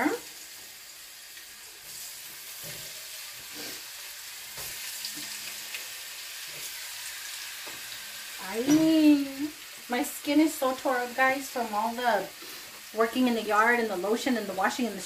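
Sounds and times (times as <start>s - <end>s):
chicken searing in hot oil: 0.0s - 15.0s.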